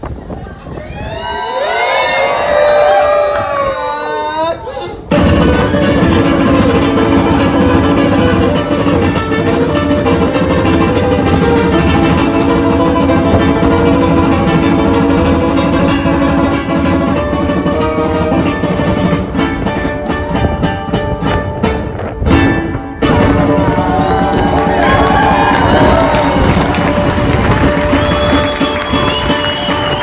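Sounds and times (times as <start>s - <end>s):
ukulele strummed and plucked: 5.1s - 30.0s.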